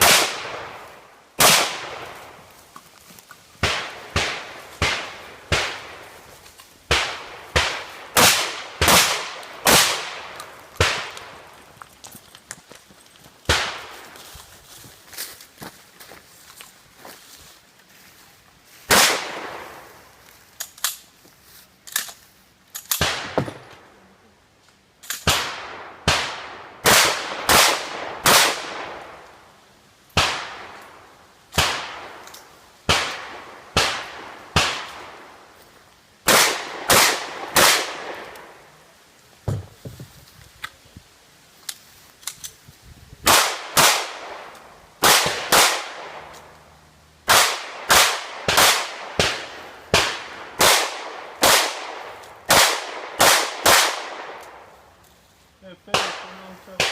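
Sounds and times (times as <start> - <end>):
gunshots in quick succession: 0.0 - 0.8, 1.4 - 2.2, 3.6 - 6.0, 6.9 - 11.2, 18.9 - 19.7, 25.3 - 29.0, 36.3 - 38.2, 43.2 - 46.3, 47.3 - 54.4
faint gunshots: 0.0 - 2.4, 3.6 - 6.0, 6.9 - 11.4, 18.9 - 19.8, 25.2 - 29.1, 36.3 - 38.5, 43.2 - 46.3, 47.3 - 54.6, 55.9 - 56.9.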